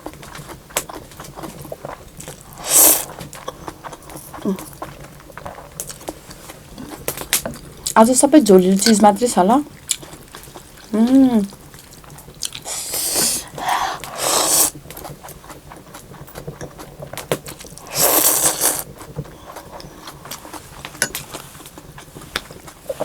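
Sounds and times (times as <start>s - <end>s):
breathy mouth sounds eating soup: 12.4s - 14.8s, 17.8s - 20.4s.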